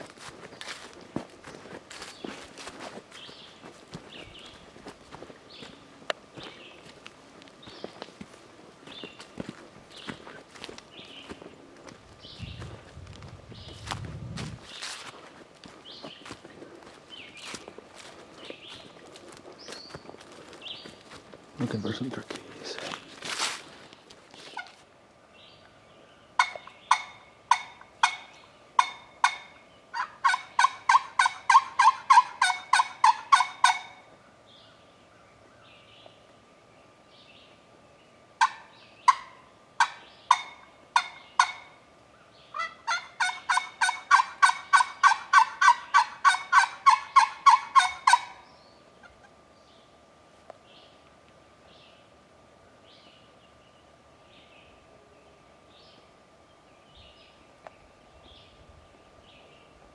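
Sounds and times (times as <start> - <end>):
turkey yelping: 26.4 - 34.0, 38.4 - 41.8, 42.5 - 48.4.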